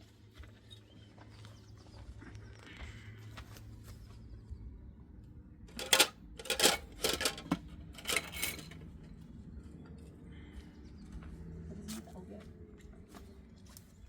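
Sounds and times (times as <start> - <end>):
household objects clattering: 5.7 - 8.9.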